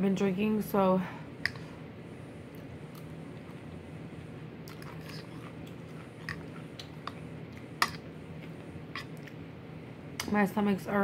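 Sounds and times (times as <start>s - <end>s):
person chewing with wet smacking: 4.6s - 9.4s.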